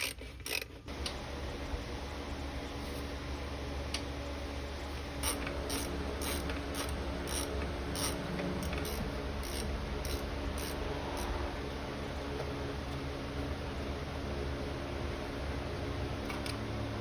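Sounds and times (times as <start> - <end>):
ratchet wrench clicking: 0.0 - 0.8, 5.2 - 11.4.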